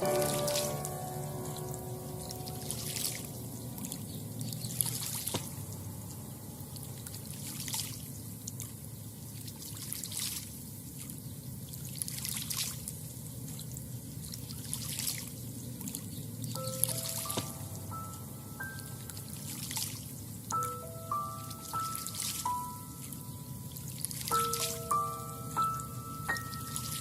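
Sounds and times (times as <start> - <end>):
water lapping at shoreline: 0.0 - 17.8.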